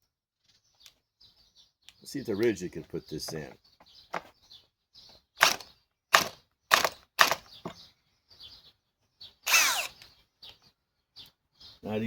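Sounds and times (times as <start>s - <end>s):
faint birds chirping: 0.0s - 12.0s
cordless drill bursts stalling: 5.4s - 5.6s, 9.5s - 10.0s.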